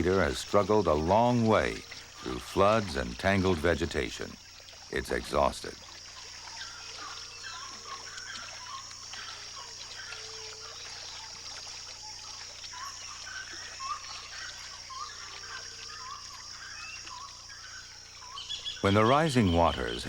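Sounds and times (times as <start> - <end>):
faint trickling water: 0.0 - 20.0
high insect drone: 0.0 - 20.0.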